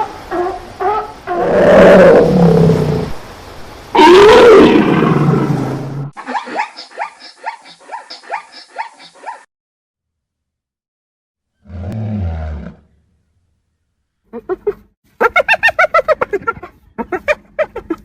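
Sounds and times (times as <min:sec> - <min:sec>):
large animal roaring: 0:01.3 - 0:03.2, 0:04.0 - 0:06.1.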